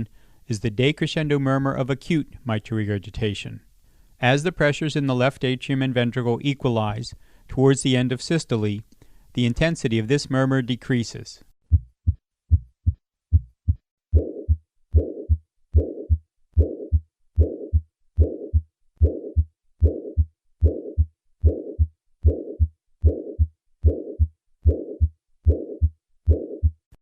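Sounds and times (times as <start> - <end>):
heart murmur: 11.7 - 26.9
heartbeat through stethoscope: 11.7 - 26.9.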